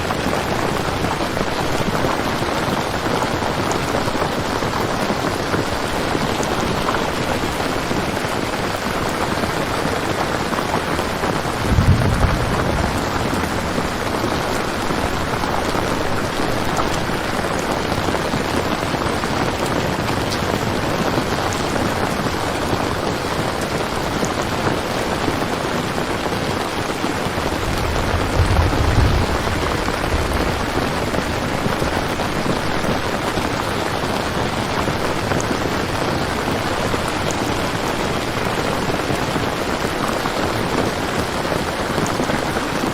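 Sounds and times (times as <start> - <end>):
rain falling: 0.0 - 42.9
thunder rolling: 11.0 - 18.6, 27.1 - 34.4.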